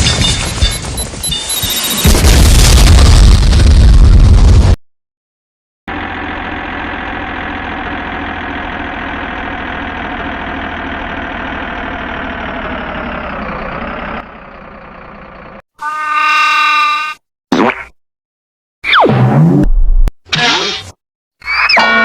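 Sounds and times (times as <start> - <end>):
heavy equipment engine idling: 5.9 - 15.6.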